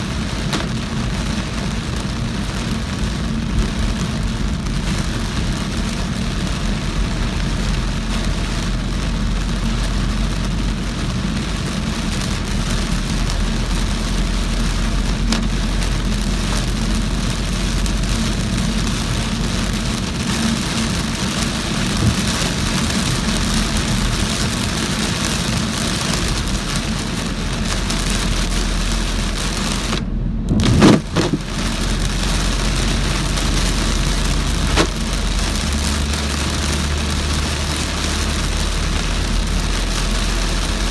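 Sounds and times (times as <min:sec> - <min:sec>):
heavy rain on a car: 0:00.0 - 0:40.9
low engine hum: 0:00.0 - 0:40.9
low whoosh: 0:21.9 - 0:22.6, 0:30.0 - 0:31.5.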